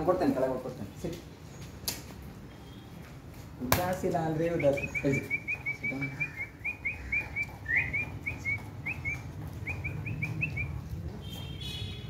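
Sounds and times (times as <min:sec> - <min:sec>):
small bird chirping: 0:04.5 - 0:10.8.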